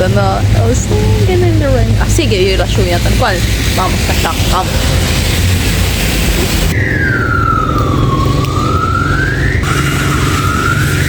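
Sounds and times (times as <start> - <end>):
emergency siren wailing: 0.0 - 11.0
steady low rumble: 0.0 - 11.0.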